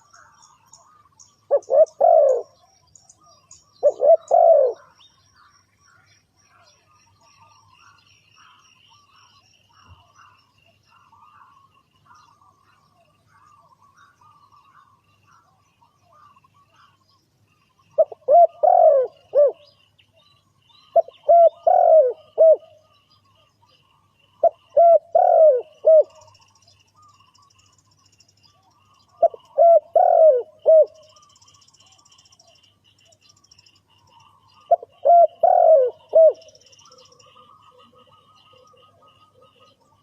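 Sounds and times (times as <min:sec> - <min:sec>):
dove cooing: 0:00.0 - 0:05.0, 0:17.9 - 0:19.8, 0:20.9 - 0:23.4, 0:24.4 - 0:27.5, 0:28.7 - 0:32.4, 0:34.2 - 0:40.0
small birds chirping: 0:00.0 - 0:40.0.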